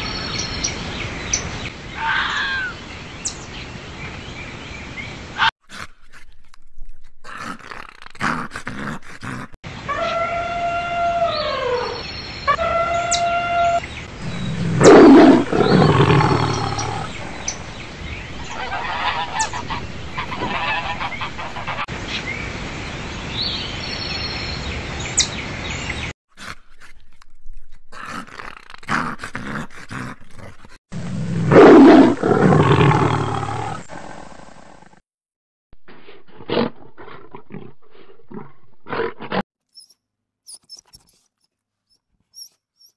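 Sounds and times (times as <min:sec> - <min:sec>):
loud animal calls: 0:02.0 - 0:02.8, 0:08.7 - 0:21.9.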